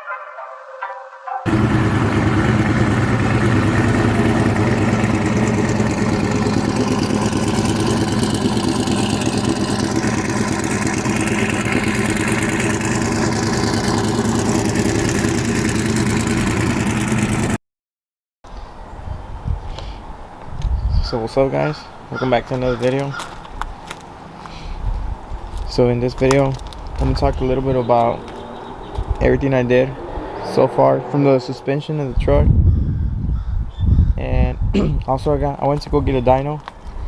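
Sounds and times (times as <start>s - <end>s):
truck engine idling: 1.5s - 17.5s, 25.6s - 29.9s.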